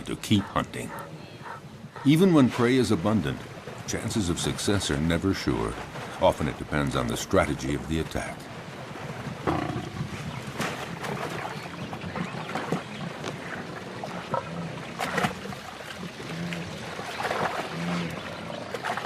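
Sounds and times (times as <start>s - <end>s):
low animal grunts: 0.0s - 2.2s, 9.4s - 10.2s, 16.1s - 18.6s
splashing in shallow water: 0.8s - 19.0s.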